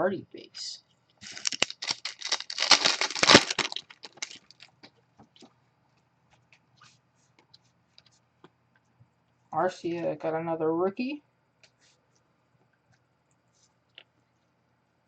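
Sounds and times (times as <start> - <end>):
cards ticking: 1.2 - 4.7
foil wrapper tearing and crinkling: 1.2 - 4.7.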